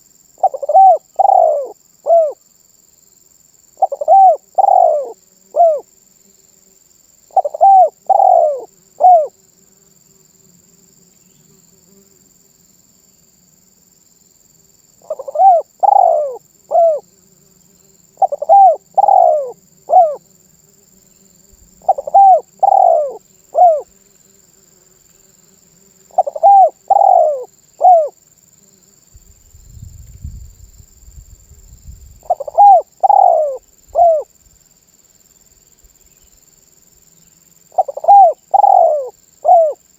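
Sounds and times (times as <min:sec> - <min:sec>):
dove cooing: 0:00.4 - 0:02.4, 0:03.8 - 0:05.9, 0:07.3 - 0:09.4, 0:15.0 - 0:17.1, 0:18.2 - 0:20.2, 0:21.8 - 0:23.9, 0:26.1 - 0:28.2, 0:32.2 - 0:34.3, 0:37.7 - 0:39.8.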